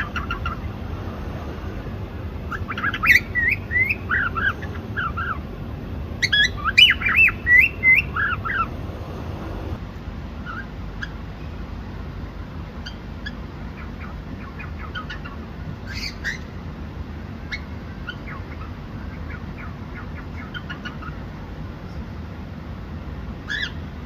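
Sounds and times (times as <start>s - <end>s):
cockatiel chirping: 0.0s - 0.7s, 2.5s - 5.4s, 6.2s - 8.7s, 12.8s - 16.5s, 17.5s - 21.2s, 23.5s - 23.8s
low background noise: 0.0s - 24.0s.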